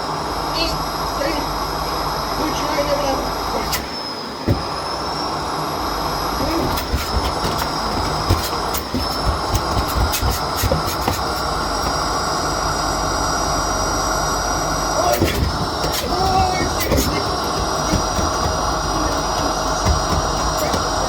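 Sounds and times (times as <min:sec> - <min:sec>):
vacuum cleaner running: 0:00.0 - 0:21.0
sharp clicks and knocks: 0:06.4 - 0:12.2.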